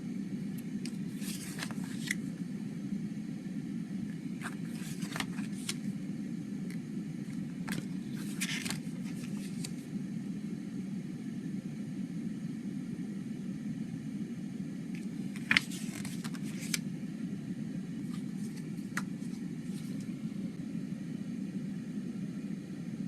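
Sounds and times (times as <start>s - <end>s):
low background hum: 0.0s - 23.0s
plastic cd case clicks and rustles: 0.8s - 2.3s, 4.4s - 5.9s, 7.3s - 9.8s, 15.0s - 16.8s, 18.1s - 20.1s.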